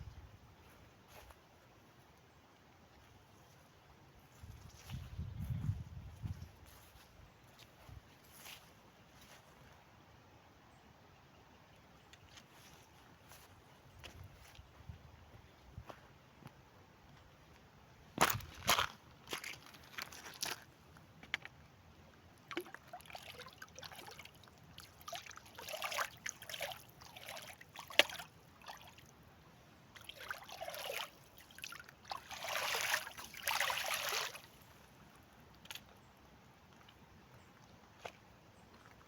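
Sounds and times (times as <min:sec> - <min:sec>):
water sloshing and splashing: 0:18.2 - 0:20.7, 0:22.4 - 0:29.2, 0:29.9 - 0:34.7.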